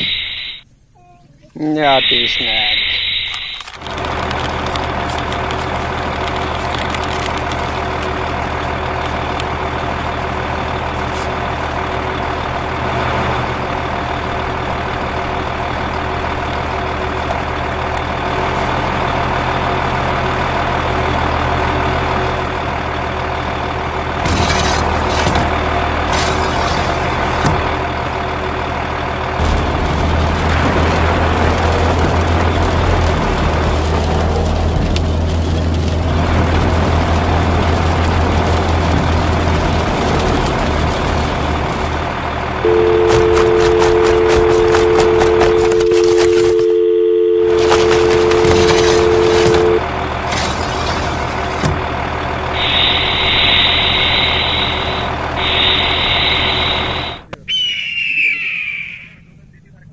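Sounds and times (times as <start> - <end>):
heavy vehicle engine running: 0.0 - 57.4
deep loud hum: 1.8 - 57.4.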